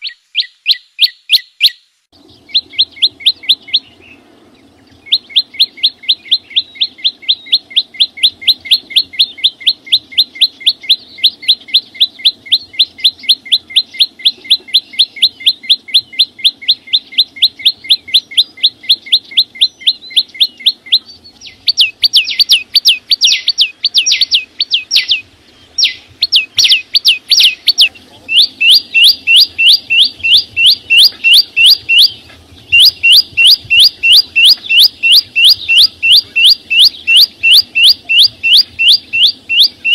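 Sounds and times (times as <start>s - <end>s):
songbird singing sharp notes: 0.0s - 39.9s.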